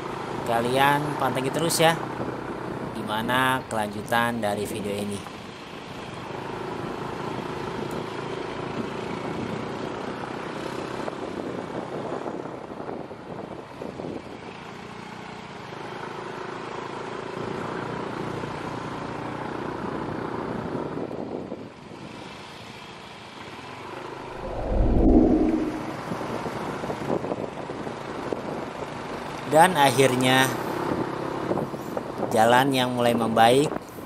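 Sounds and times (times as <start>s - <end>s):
road noise: 24.3s - 26.3s
wind noise: 24.3s - 26.4s.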